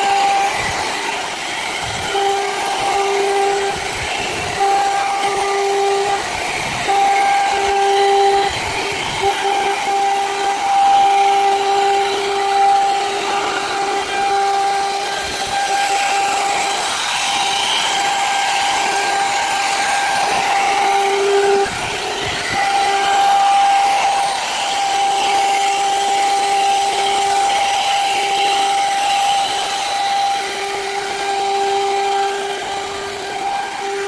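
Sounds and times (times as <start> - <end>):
power tool whining: 0.0 - 34.0.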